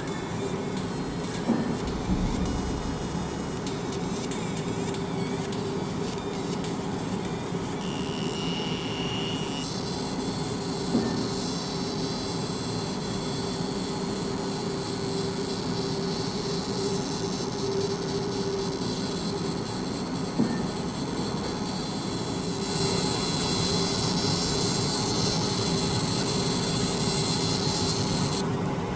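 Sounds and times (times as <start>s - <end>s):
low hum: 1.2s - 4.4s
laser engraver buzzing whine: 7.6s - 11.5s, 20.4s - 28.4s.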